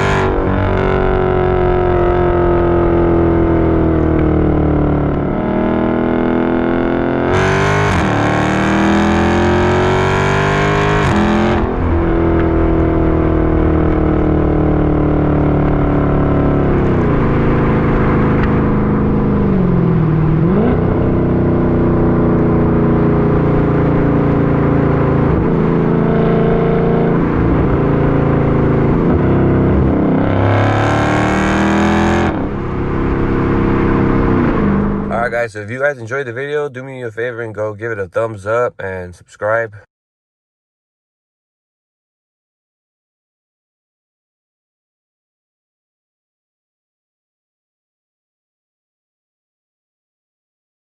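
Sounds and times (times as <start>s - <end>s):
car engine revving: 0.0s - 39.8s.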